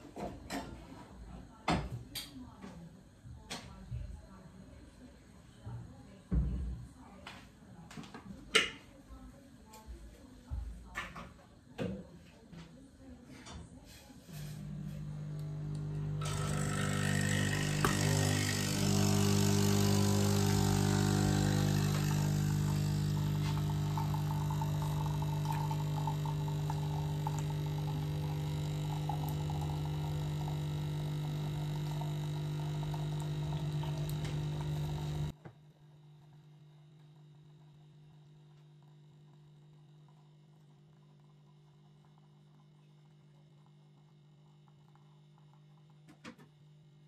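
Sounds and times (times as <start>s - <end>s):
appliance motor humming: 14.3s - 35.4s.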